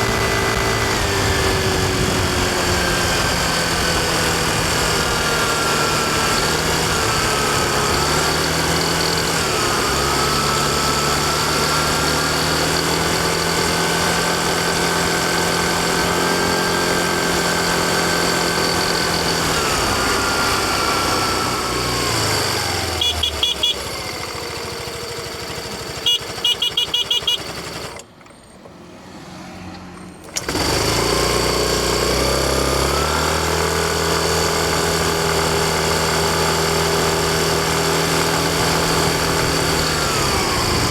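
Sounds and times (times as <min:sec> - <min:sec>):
scooter engine running: 0:00.0 - 0:28.5, 0:30.0 - 0:40.9
short high beeps: 0:26.1 - 0:27.5.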